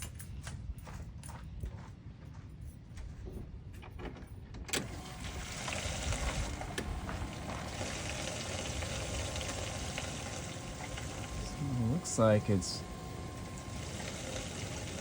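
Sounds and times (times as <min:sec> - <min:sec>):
fuel pump whirring: 0:04.7 - 0:15.0.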